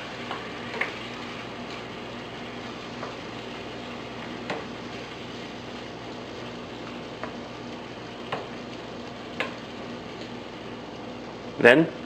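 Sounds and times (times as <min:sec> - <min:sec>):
food sizzling in frying pan: 0:00.0 - 0:12.0
utensil clicking against pan: 0:08.2 - 0:10.4.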